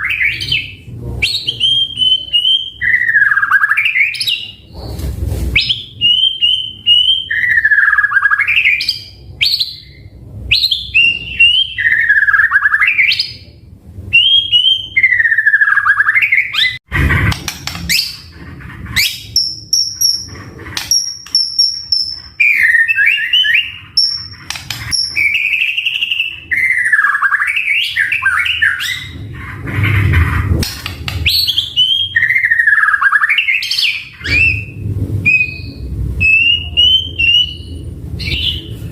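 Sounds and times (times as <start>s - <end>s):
bird singing loudly: 0.0s - 4.6s, 5.6s - 13.4s, 19.0s - 29.2s, 31.2s - 38.8s.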